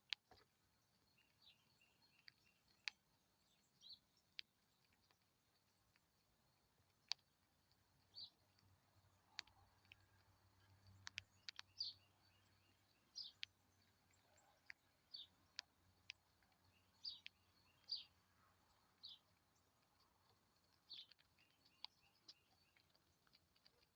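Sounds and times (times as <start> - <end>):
sharp irregular clicks: 0.0 - 23.9
high bird chirps: 16.7 - 18.2.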